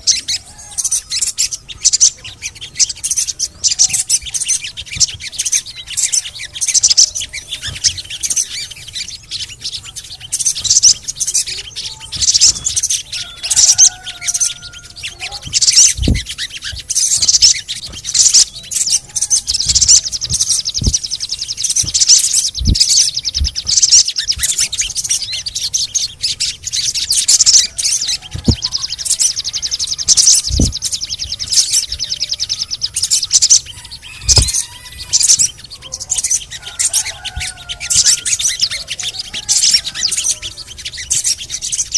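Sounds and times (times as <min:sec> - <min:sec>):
birds chirping and chattering: 0:00.0 - 0:41.9
fast rattling bird trills: 0:00.0 - 0:41.9
soft low thumps: 0:15.3 - 0:18.5, 0:19.4 - 0:24.8, 0:28.3 - 0:28.8, 0:30.1 - 0:32.1, 0:34.2 - 0:34.6.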